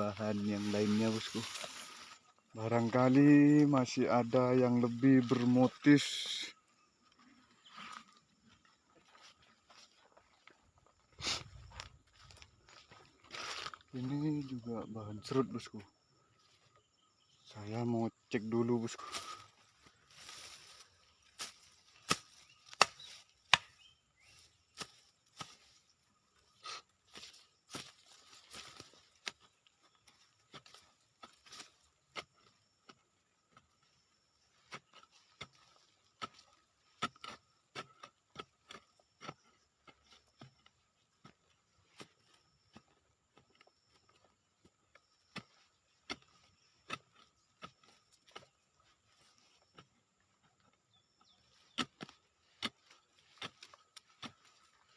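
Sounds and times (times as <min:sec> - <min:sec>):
hand tool chopping ground: 0:00.0 - 0:06.5, 0:18.5 - 0:54.9.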